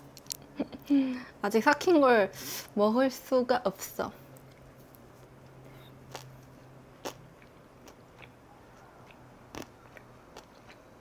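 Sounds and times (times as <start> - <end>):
close-up chewing: 6.0 - 11.0.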